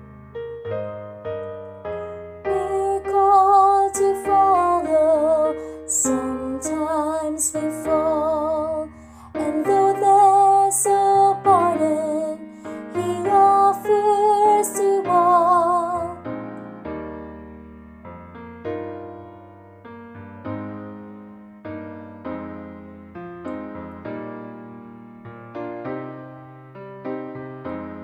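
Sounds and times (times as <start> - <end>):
piano accompaniment: 0.0 - 28.0
woman singing with vibrato: 2.5 - 16.2.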